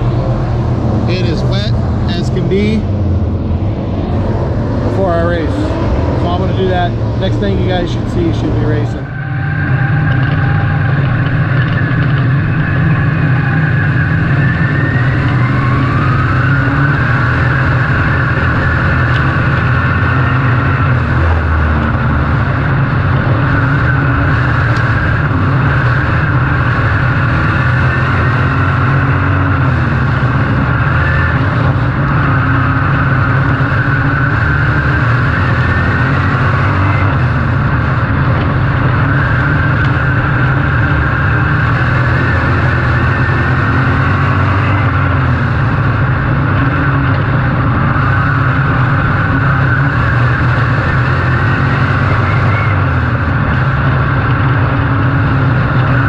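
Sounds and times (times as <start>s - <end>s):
race car engines at speed: 0.0s - 56.0s.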